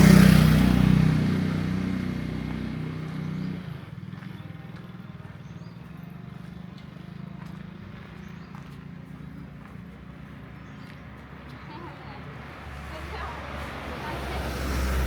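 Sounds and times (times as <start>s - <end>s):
vehicle engine passing by: 0.0s - 4.3s, 12.4s - 15.0s
steady engine hum: 0.0s - 15.0s.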